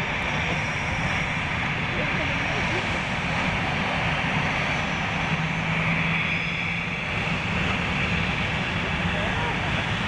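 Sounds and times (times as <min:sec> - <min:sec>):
jet engines running: 0:00.0 - 0:10.0.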